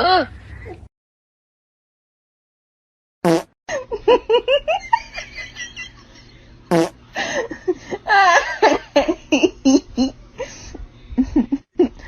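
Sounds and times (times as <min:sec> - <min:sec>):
fart-like sound: 0:03.2 - 0:03.6, 0:06.7 - 0:07.0
laughter: 0:03.7 - 0:06.4, 0:07.2 - 0:10.1, 0:11.2 - 0:12.0.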